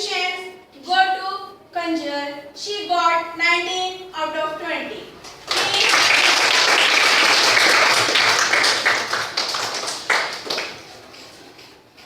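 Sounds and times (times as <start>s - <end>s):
children clapping: 5.2s - 11.2s.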